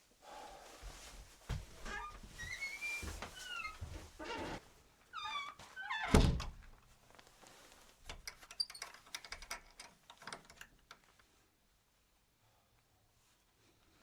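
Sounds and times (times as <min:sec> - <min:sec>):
light clicks and knocks: 0:08.0 - 0:11.2.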